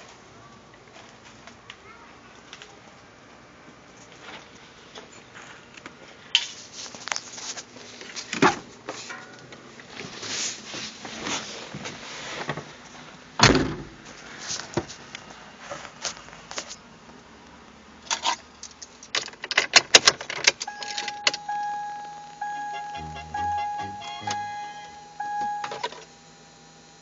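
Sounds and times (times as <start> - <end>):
electronic warning chime: 20.7 - 25.9.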